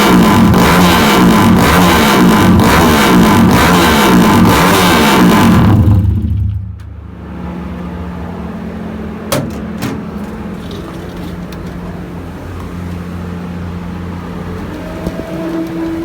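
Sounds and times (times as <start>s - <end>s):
motorcycle engine revving and idling: 0.0s - 16.0s.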